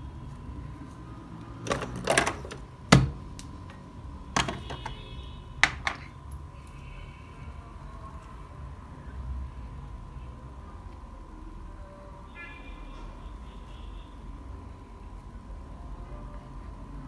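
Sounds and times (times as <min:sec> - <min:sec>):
faint steady hum: 0:00.0 - 0:17.0
knocks and clatters of handling: 0:01.6 - 0:03.8, 0:04.4 - 0:05.0, 0:05.6 - 0:06.1.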